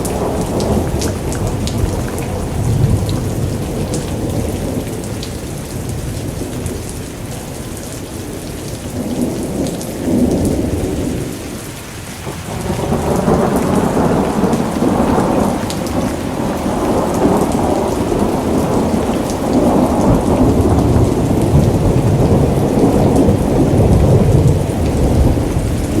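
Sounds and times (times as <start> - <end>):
rolling thunder: 0.0 - 6.9, 12.2 - 26.0
rain falling: 0.0 - 26.0.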